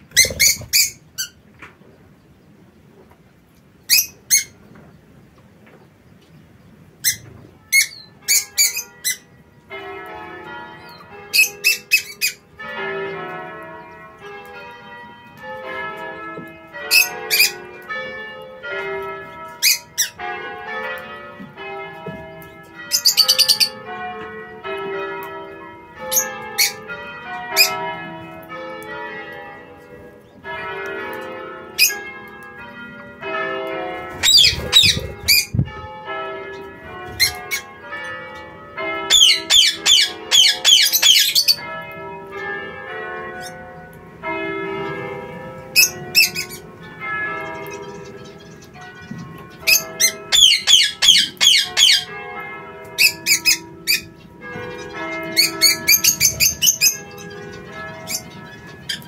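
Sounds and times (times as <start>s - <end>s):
bird chirps and squawks: 0.1s - 1.4s, 34.2s - 35.6s, 49.6s - 52.1s.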